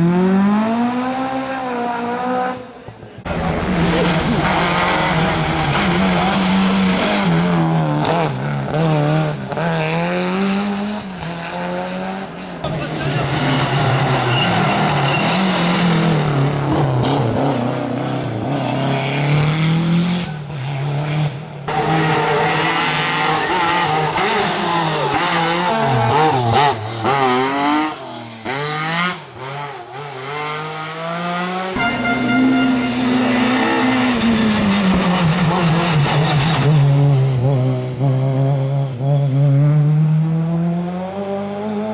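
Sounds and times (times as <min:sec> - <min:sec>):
rally car engines revving: 0:00.0 - 0:41.9.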